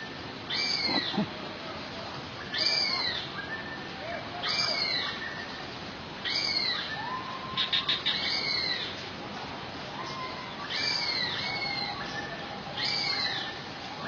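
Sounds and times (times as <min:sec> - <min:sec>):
bird calling high: 0:00.5 - 0:01.3
lower bird call: 0:00.5 - 0:01.3.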